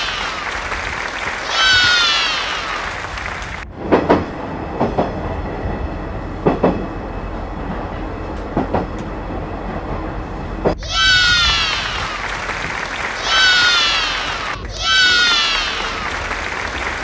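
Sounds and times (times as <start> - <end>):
train wheels clickety-clack: 3.1 - 10.8.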